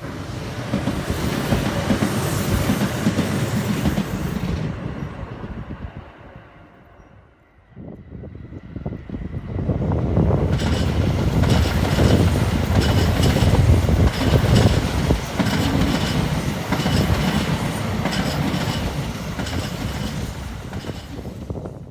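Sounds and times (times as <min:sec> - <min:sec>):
train rumbling past: 0:00.0 - 0:21.9
wheel clatter over rail joints: 0:10.5 - 0:21.3.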